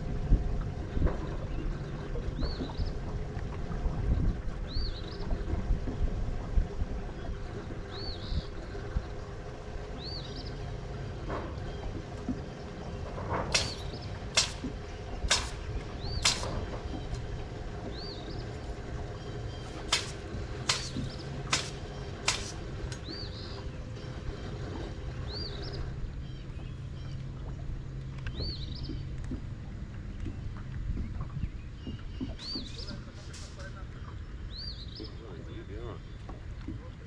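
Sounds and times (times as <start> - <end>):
low hum: 0.0 - 37.0
sharp clicks: 16.2 - 16.6, 19.9 - 23.0
bird chirping: 31.6 - 33.1.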